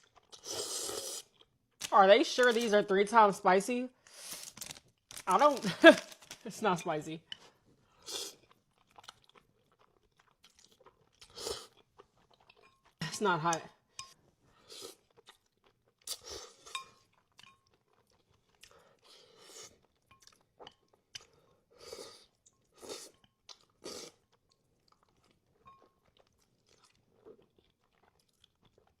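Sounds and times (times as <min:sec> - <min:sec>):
chewing and slurping noodles: 0:07.4 - 0:13.0, 0:14.5 - 0:29.0.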